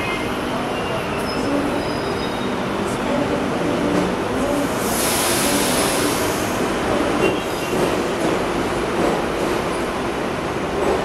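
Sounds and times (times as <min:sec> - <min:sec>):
train wheels rumbling on rail: 0:00.0 - 0:11.0
faint high wheel squeal: 0:00.8 - 0:02.6.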